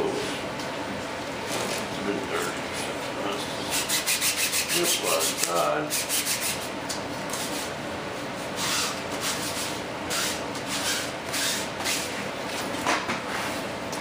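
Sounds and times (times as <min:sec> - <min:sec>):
sandpaper rubbing by hand: 0:03.7 - 0:06.6.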